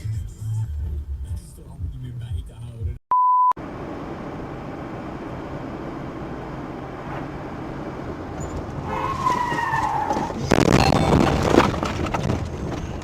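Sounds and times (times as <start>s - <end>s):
car road noise: 0.0s - 3.0s, 3.6s - 13.0s
tyres squealing in a skid: 8.4s - 12.0s.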